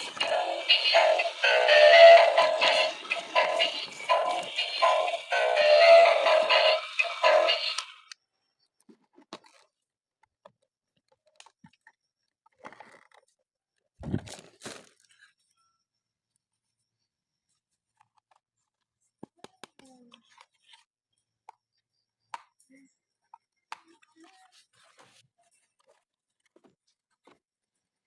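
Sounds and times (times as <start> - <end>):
music with singing: 0.0 - 8.0
toy packaging crinkling: 14.1 - 15.2.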